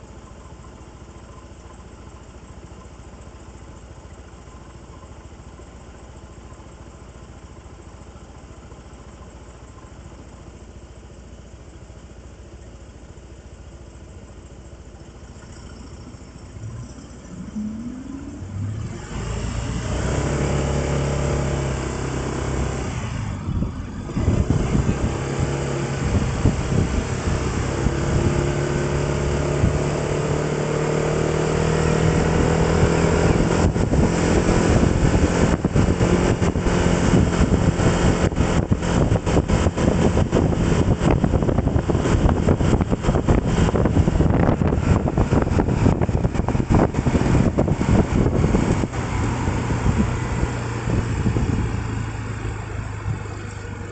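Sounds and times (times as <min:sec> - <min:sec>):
road noise: 0:00.0 - 0:53.9
vehicle engine accelerating: 0:13.9 - 0:53.9
gusty crackling wind: 0:22.8 - 0:30.0, 0:32.0 - 0:53.8.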